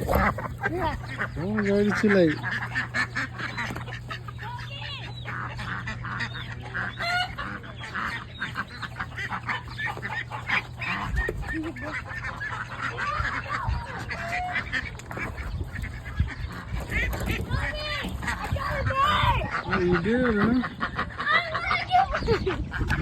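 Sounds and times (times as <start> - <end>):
ducks and poultry calling: 0.0 - 23.0
steady low hum: 0.0 - 23.0.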